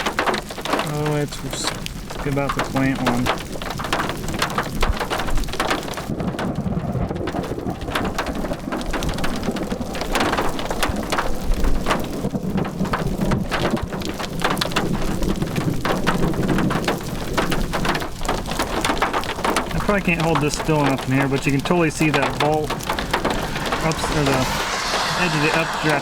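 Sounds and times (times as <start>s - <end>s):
rain on vehicle roof: 0.0s - 23.1s
low rumble: 21.4s - 26.0s.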